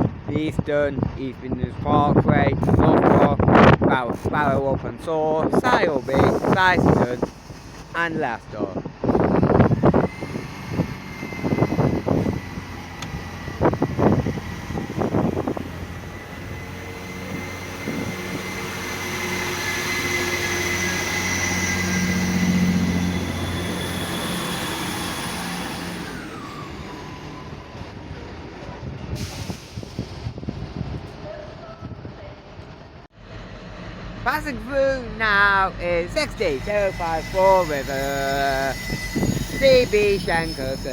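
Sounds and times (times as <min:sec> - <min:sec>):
diesel train engine: 0:00.0 - 0:40.9
high whine: 0:05.5 - 0:27.7, 0:33.2 - 0:40.9.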